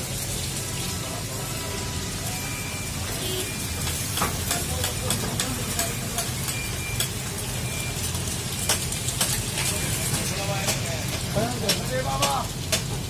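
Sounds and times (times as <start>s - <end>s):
eggs sizzling in a pan: 0.0s - 13.0s.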